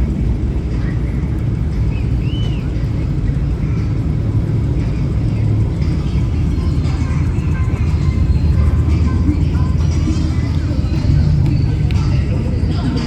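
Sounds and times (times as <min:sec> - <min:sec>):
vehicle engine rumbling: 0:00.0 - 0:13.0
high rising-and-falling chirp: 0:06.0 - 0:11.9.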